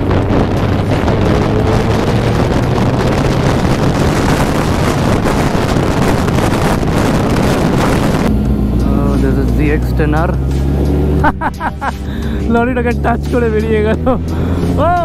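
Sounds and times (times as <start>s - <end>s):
wind roaring over microphone: 0.0s - 8.7s
motorcycle engine running: 0.0s - 15.0s.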